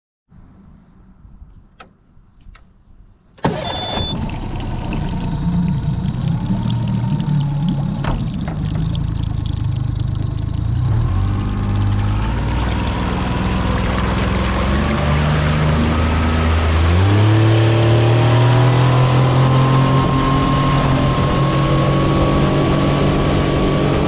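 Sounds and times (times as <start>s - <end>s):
outboard motor idling: 3.4s - 21.0s.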